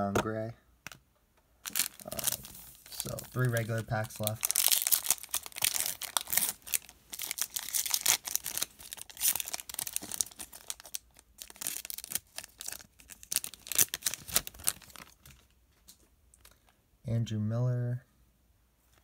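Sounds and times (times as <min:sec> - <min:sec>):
foil wrapper crinkling: 0:01.6 - 0:15.6.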